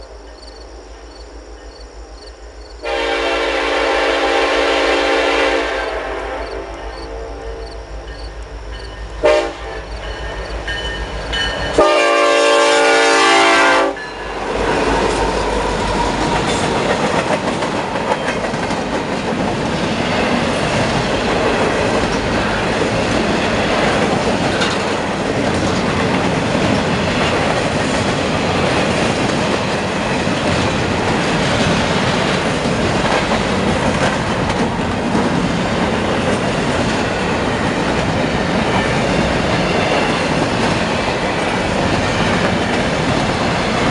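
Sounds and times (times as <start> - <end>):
locomotive horn blast: 2.8 - 7.7, 9.2 - 9.9, 11.8 - 14.0
train wheels clattering: 14.0 - 43.9.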